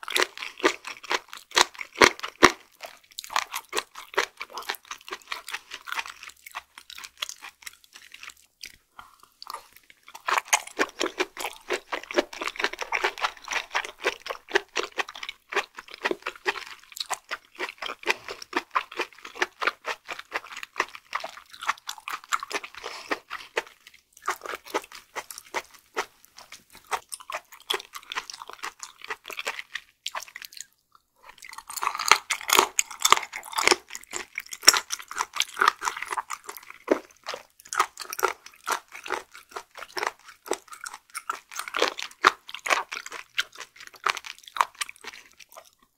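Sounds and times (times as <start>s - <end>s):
chewing with sticky mouth clicks: 0.0s - 45.9s.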